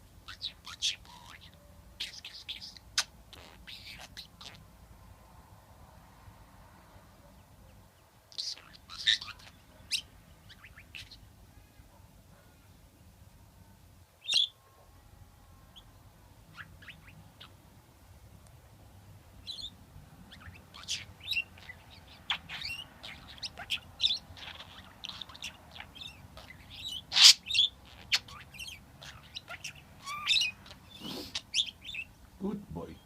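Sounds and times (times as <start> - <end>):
budgerigar chirping: 0.2 - 4.6, 8.3 - 11.2, 14.2 - 14.6, 16.5 - 17.6, 19.4 - 32.2.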